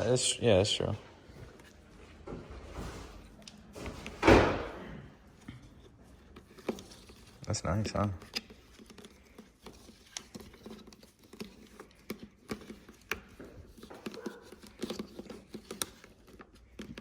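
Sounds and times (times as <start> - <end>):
soft rubbing of sealant: 5.2 - 17.0.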